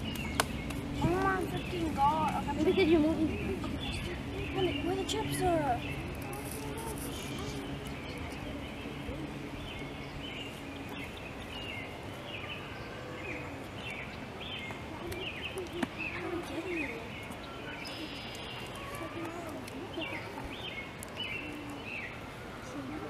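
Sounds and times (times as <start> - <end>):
birds chirping: 0.0 - 23.0
steady background noise: 0.0 - 23.0.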